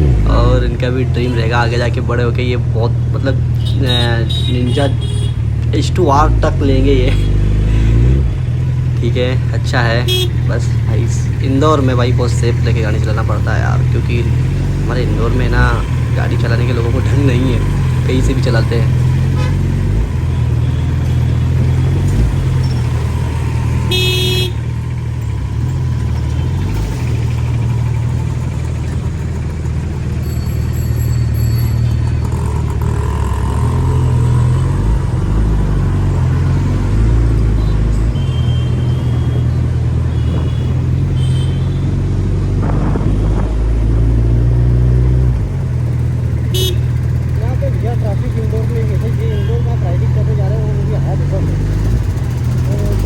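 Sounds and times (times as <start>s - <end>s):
motorcycle engine running at low revs: 0.0s - 1.7s, 5.0s - 53.0s
vehicle horn honk: 3.6s - 5.5s, 10.0s - 10.5s, 19.2s - 21.3s, 23.8s - 24.8s, 37.6s - 41.9s, 46.5s - 47.0s, 49.2s - 49.8s.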